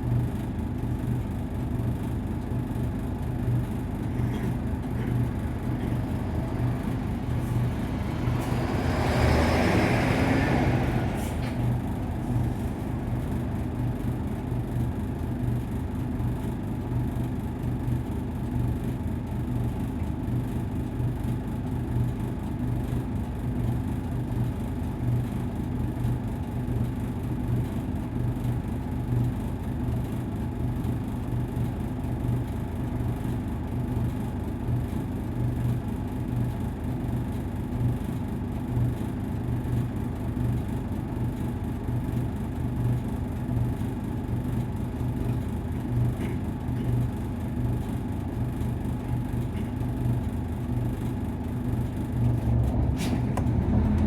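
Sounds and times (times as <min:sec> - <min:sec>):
bus diesel engine droning: 0:00.1 - 0:17.7, 0:35.9 - 0:54.0.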